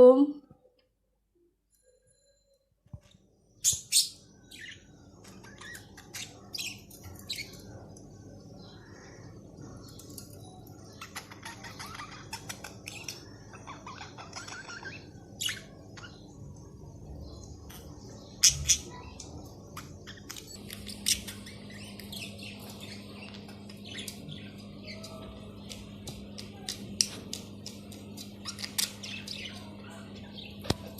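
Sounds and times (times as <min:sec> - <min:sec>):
steady low hum: 0:03.2 - 0:30.9
budgerigars chirping: 0:11.0 - 0:16.2.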